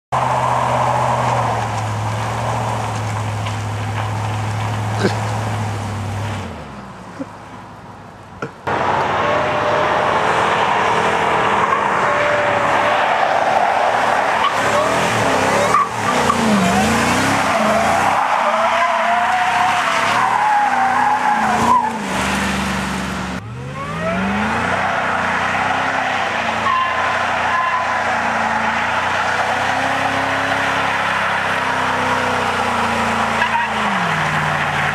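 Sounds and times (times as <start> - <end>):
tyres spinning and squealing: 0.1 - 6.7, 8.7 - 34.9
pickup engine revving: 8.7 - 34.9.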